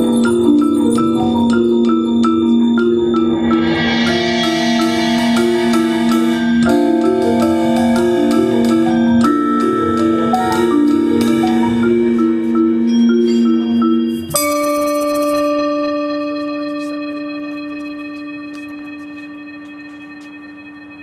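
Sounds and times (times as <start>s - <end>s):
marimba and glockenspiel music: 0.0s - 21.0s
bright cymbal crash: 3.4s - 9.0s.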